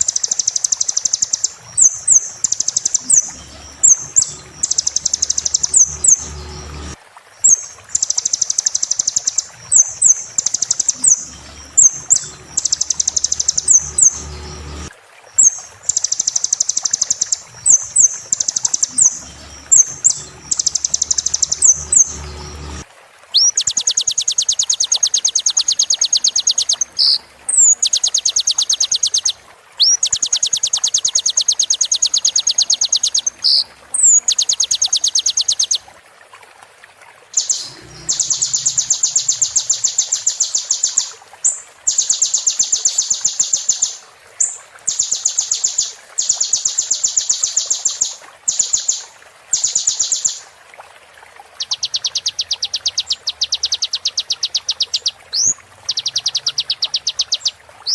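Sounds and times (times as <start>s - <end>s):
bird trilling: 0.0s - 22.8s, 37.4s - 41.1s.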